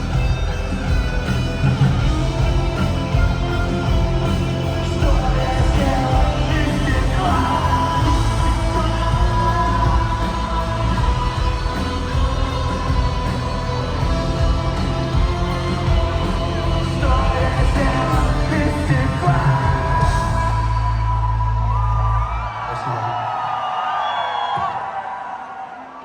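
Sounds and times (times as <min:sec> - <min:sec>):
live rock band playing: 0:00.0 - 0:20.9
person singing: 0:04.4 - 0:21.2.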